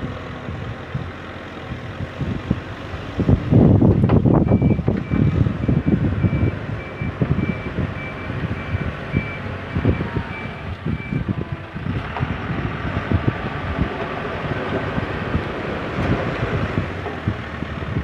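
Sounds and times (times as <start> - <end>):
diesel engine running: 0.0 - 18.0
reversing alarm beeping: 4.4 - 11.3.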